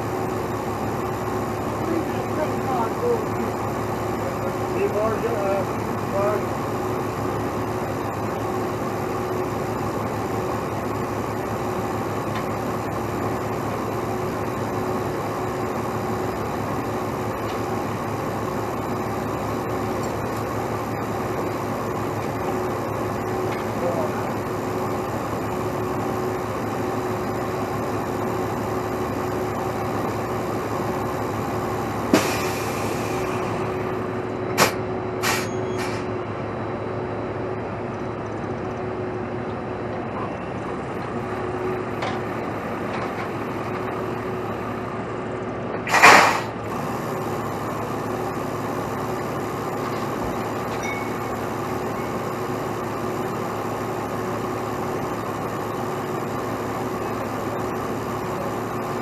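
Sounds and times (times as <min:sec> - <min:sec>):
diesel truck idling: 0:00.0 - 0:59.0
air brake hiss: 0:32.1 - 0:33.2, 0:34.6 - 0:36.1, 0:45.9 - 0:46.6.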